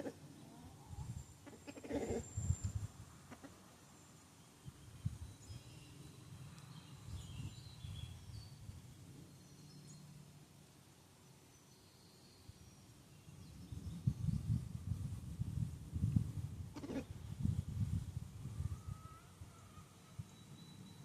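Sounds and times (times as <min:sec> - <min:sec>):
chicken clucking softly: 0:00.0 - 0:02.2, 0:03.3 - 0:03.7
faint high bird chirps: 0:03.8 - 0:10.2, 0:11.2 - 0:14.8, 0:18.4 - 0:21.0.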